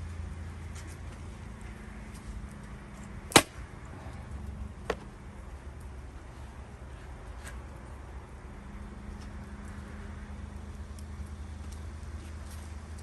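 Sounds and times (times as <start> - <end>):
axe striking wood: 3.3 - 3.6.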